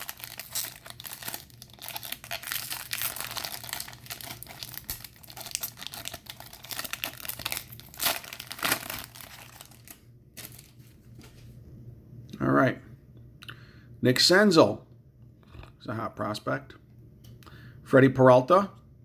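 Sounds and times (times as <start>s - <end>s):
foil wrapper tearing and crinkling: 0.0s - 10.8s.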